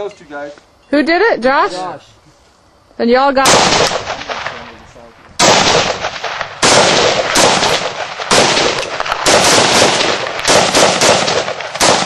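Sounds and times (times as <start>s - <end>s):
rifle shots echoing: 3.4s - 12.0s.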